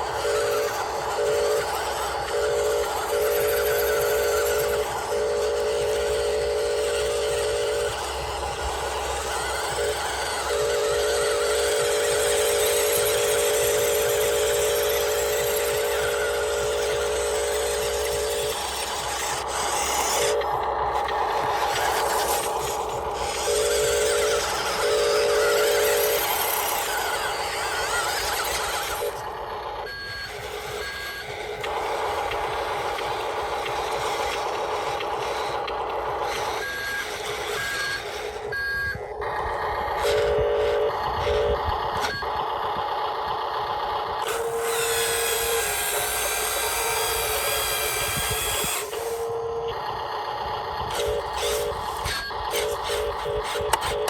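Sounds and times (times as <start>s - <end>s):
small electric motors whirring: 0.0s - 54.0s
reversing beeps: 29.8s - 31.7s, 36.5s - 39.2s.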